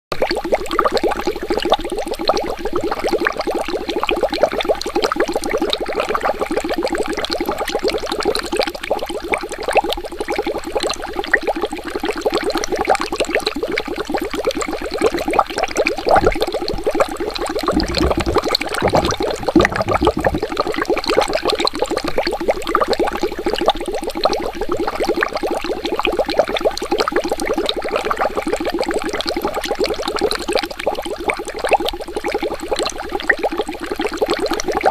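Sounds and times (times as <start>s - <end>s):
deep water gurgles: 13.6s - 34.9s
water bubbling: 16.0s - 21.0s.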